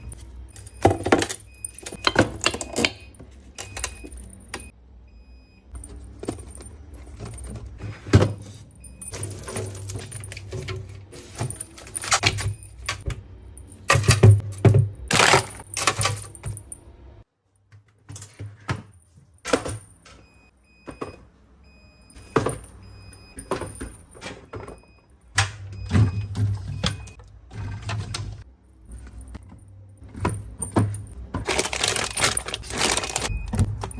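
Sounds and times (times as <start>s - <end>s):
food containers clinking and rattling: 0.0s - 4.7s, 5.8s - 16.8s, 25.7s - 33.9s.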